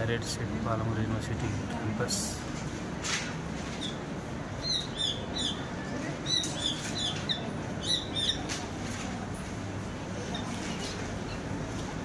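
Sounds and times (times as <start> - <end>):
bird chirping: 4.6 - 8.4.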